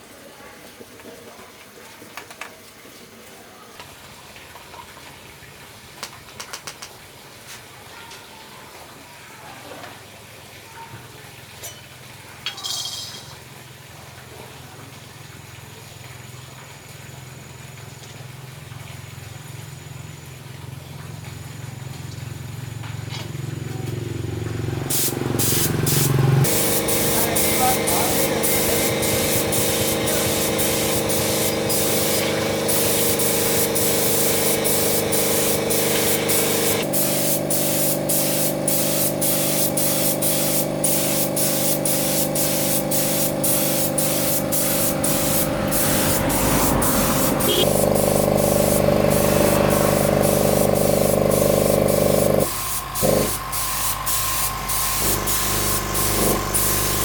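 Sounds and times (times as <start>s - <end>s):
spray hiss: 24.8s - 57.0s.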